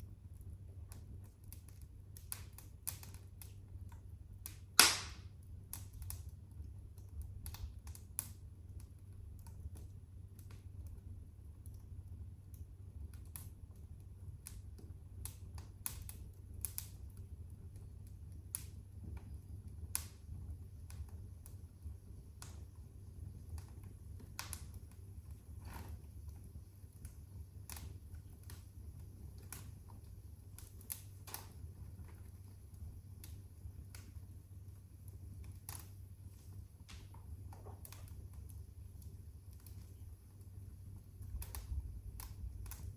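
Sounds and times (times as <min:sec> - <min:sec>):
low steady rumble: 0:00.0 - 0:42.9
wood fire crackling: 0:00.0 - 0:42.9.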